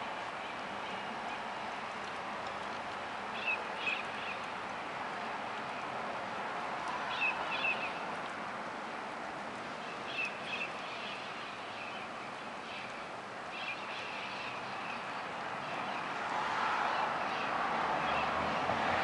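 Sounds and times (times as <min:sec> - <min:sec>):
outdoor background hum: 0:00.0 - 0:19.0
small birds chirping: 0:03.3 - 0:04.6, 0:07.0 - 0:08.1, 0:09.6 - 0:16.2.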